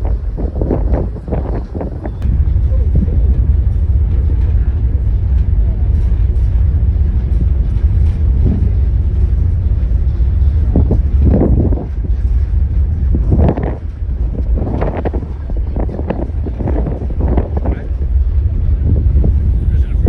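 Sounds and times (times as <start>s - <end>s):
loud low rumble: 0.0s - 20.0s
voices: 14.4s - 20.0s.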